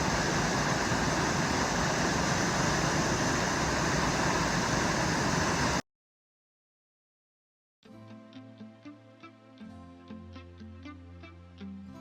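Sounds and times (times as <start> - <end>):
loud rushing noise: 0.0 - 5.8.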